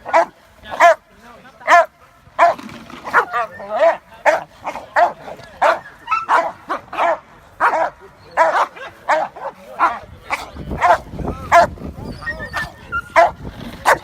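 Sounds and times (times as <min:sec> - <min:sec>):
dogs barking: 0:00.0 - 0:01.0, 0:01.6 - 0:14.0
dog whining: 0:12.0 - 0:14.0.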